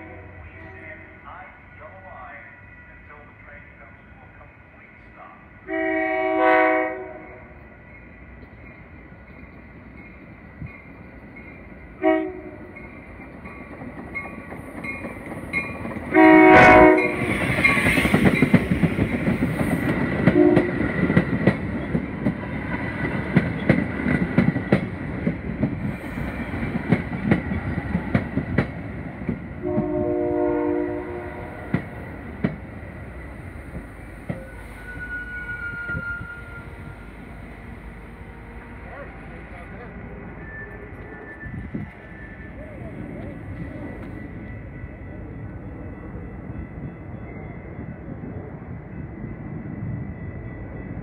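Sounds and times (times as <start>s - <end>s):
train horn blasts: 0.0s - 1.2s, 5.6s - 7.6s, 12.0s - 12.8s, 16.1s - 17.5s, 20.2s - 20.9s, 29.6s - 31.8s, 34.3s - 39.2s
train cars rumbling past: 0.0s - 51.0s
brake squeal: 34.4s - 37.0s, 38.9s - 44.3s.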